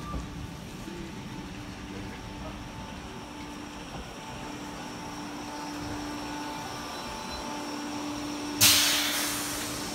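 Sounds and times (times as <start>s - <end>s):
electric train equipment whine: 0.0s - 9.9s
compressed air hiss: 8.6s - 9.9s.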